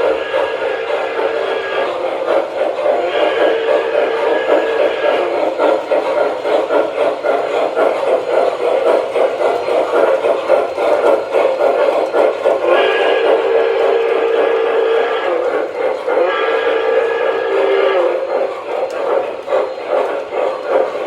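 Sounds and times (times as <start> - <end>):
multi-tone steam whistle: 0.0 - 6.1, 12.4 - 21.0
model steam locomotive chuffing: 0.0 - 21.0.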